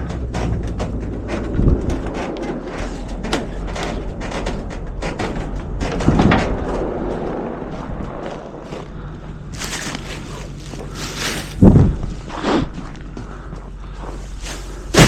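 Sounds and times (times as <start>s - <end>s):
knocks and rattles: 0.0s - 8.9s
steady low rumble: 0.0s - 15.0s.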